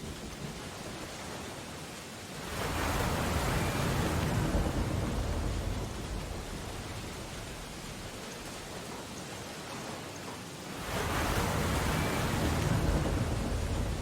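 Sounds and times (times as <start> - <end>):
ocean wave breaking: 2.4 - 8.8, 10.6 - 14.0.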